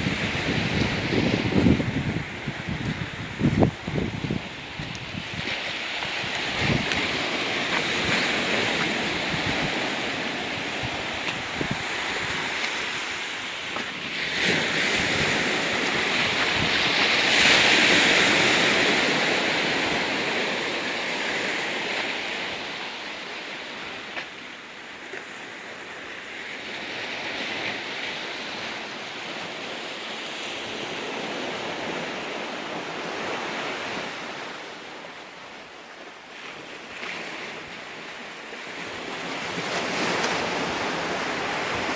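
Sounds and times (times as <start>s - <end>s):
wind buffeting microphone: 0.0s - 21.6s
ocean waves on rocky beach: 0.0s - 41.9s.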